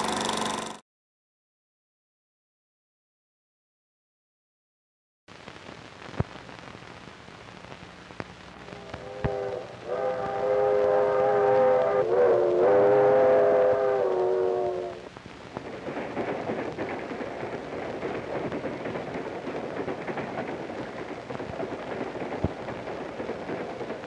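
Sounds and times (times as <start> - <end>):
freight train rumbling past: 8.6 - 24.0
train horn chord: 8.7 - 15.1.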